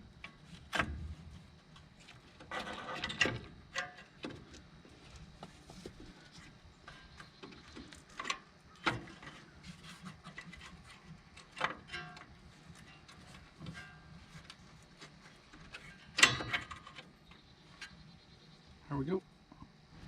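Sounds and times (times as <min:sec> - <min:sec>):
tools and metal parts clicking: 0:15.6 - 0:18.0.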